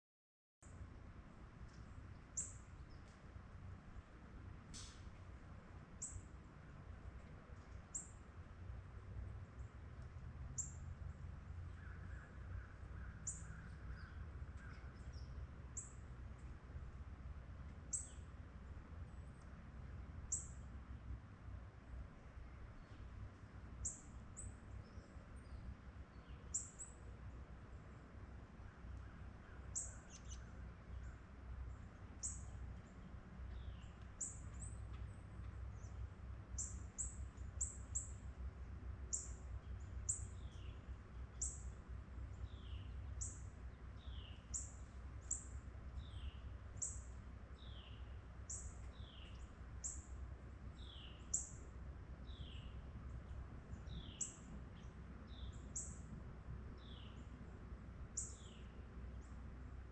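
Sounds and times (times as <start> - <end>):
faint low rumble: 0.6 - 59.9
small birds chipping: 22.7 - 56.0, 58.1 - 59.4.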